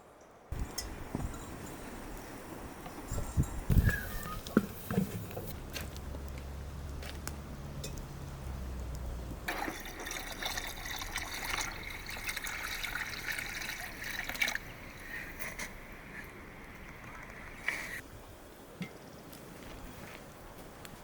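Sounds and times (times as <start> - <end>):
liquid pouring into a container: 9.5 - 15.7.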